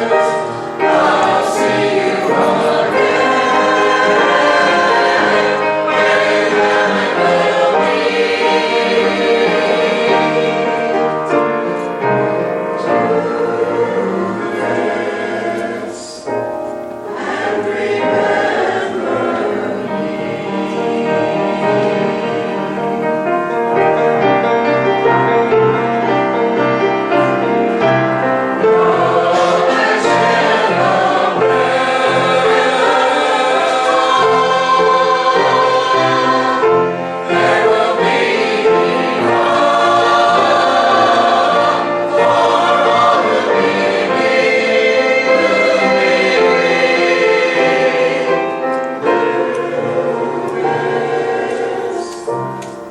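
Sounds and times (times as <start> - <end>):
church choir singing: 0.0 - 52.9
instrumental accompaniment: 0.0 - 52.9.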